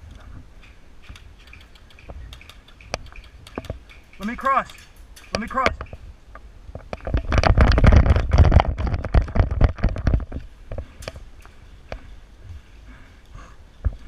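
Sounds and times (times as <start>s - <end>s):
sharp clicks: 0.6s - 9.9s.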